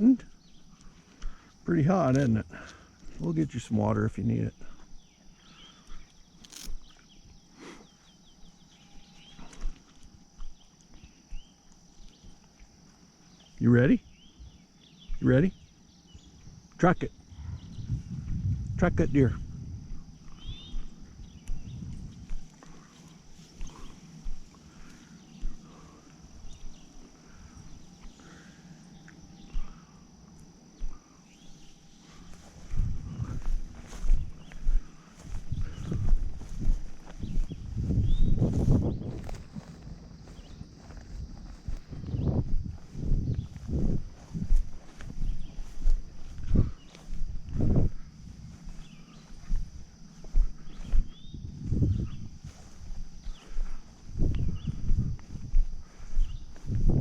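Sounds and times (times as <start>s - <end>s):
high insect drone: 0.0s - 57.0s
bird chirping: 0.3s - 1.0s, 13.2s - 16.6s, 20.2s - 22.3s, 30.8s - 42.4s
movement through vegetation: 4.7s - 13.6s, 19.6s - 57.0s.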